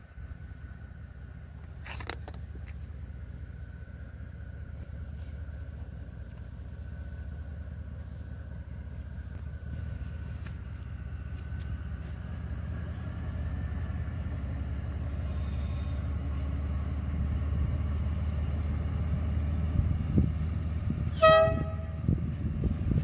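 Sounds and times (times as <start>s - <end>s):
locomotive engine rumble: 0.0s - 23.0s
locomotive horn blast: 21.1s - 22.2s.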